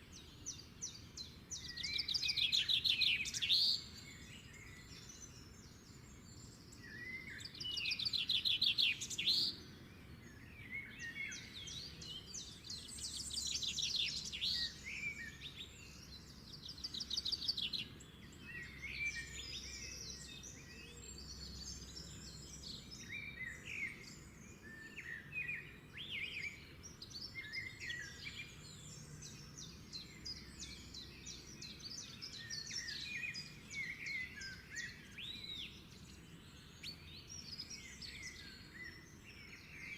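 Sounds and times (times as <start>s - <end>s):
birds chirping and singing: 0.1s - 39.9s.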